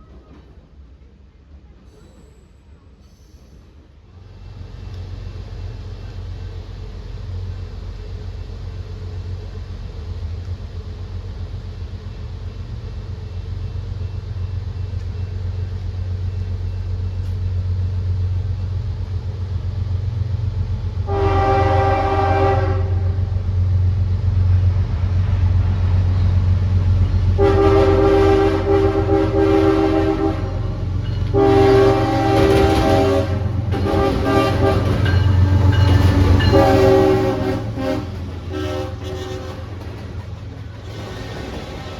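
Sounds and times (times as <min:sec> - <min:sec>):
locomotive engine rumble: 0:00.0 - 0:41.9
locomotive air horn blasts: 0:21.1 - 0:23.3, 0:27.4 - 0:39.8.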